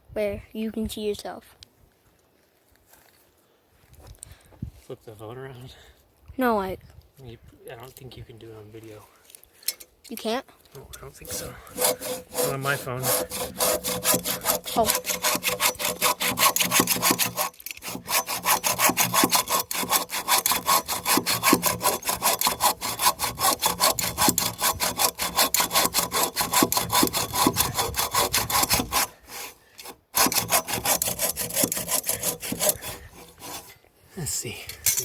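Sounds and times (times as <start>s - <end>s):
hand saw cutting wood: 11.1s - 33.8s.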